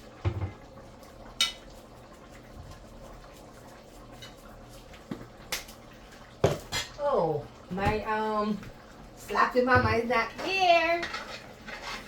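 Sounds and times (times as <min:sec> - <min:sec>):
kitchenware clinking: 0:10.8 - 0:12.0.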